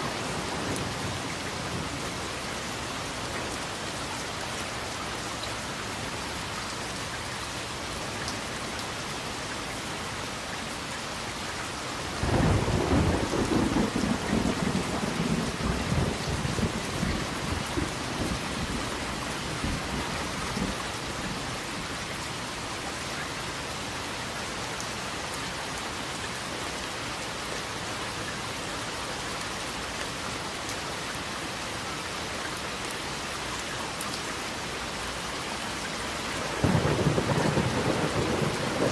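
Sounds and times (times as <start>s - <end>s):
steady rain: 0.0s - 38.9s
thunder clap rumbling: 36.5s - 38.9s.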